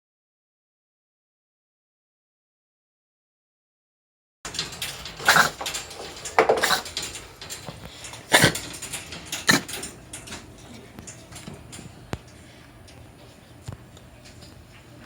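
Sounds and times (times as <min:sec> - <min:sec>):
cat coughing: 0:05.2 - 0:05.6, 0:06.5 - 0:07.0, 0:08.3 - 0:08.7, 0:09.4 - 0:09.8.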